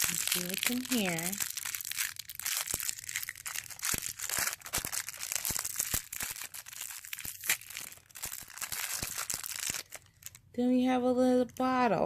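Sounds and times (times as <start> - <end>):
plastic wrapper crinkling and tearing: 0.0 - 10.5.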